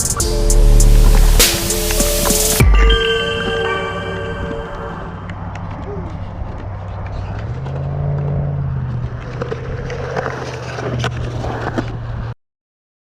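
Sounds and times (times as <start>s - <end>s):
skateboard wheels rolling on concrete: 5.5s - 12.4s
skateboard clacking on ground: 8.9s - 12.3s.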